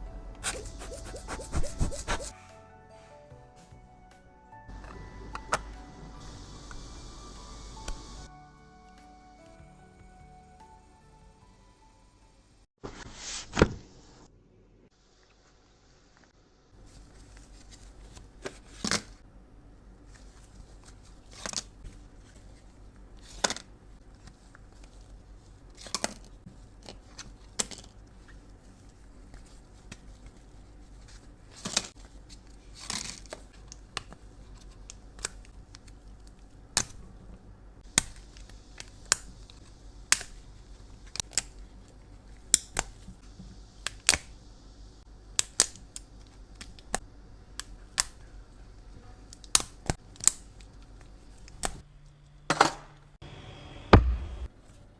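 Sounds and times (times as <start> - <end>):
faint hiss: 5.7 - 8.3.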